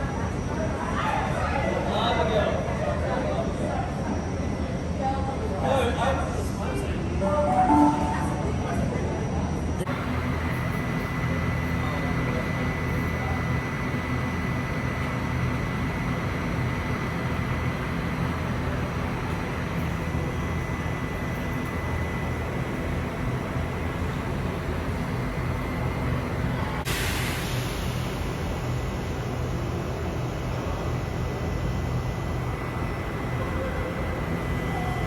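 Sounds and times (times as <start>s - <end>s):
electric train humming: 7.2s - 35.0s.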